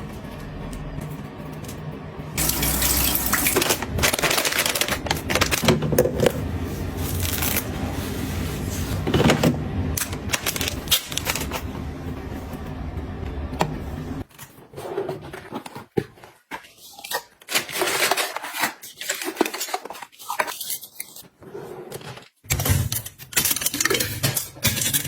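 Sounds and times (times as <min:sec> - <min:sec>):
low steady hum: 0:00.0 - 0:14.2
packaging clicking and rustling: 0:02.4 - 0:07.8, 0:09.0 - 0:11.7, 0:14.2 - 0:21.3, 0:21.9 - 0:25.0.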